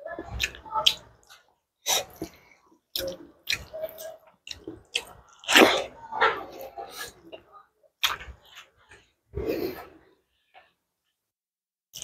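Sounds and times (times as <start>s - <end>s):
wet chewing and lip smacking: 0.3s - 5.9s.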